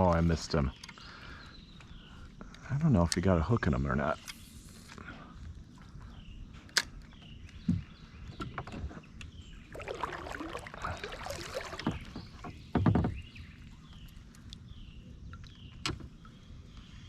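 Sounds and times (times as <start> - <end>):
water splashing against kayak: 9.0 - 16.8
thump on boat: 10.8 - 13.4.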